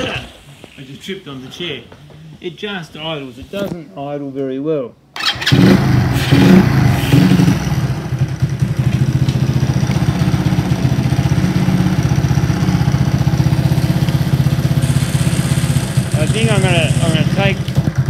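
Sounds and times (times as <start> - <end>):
motorbike engine idling: 5.2 - 18.0.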